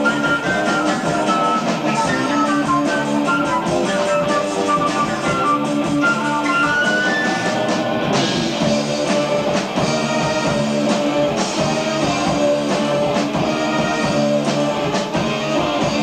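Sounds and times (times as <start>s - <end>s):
drum kit beat: 0.0s - 16.0s
electric guitar: 0.0s - 16.0s
keyboards holding notes: 0.0s - 16.0s.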